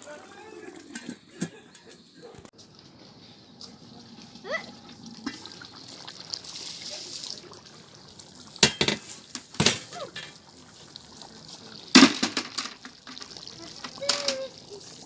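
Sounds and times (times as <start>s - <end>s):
liquid sloshing: 2.7s - 15.0s
metal pot knocks and clinks: 8.6s - 10.4s, 11.9s - 14.4s.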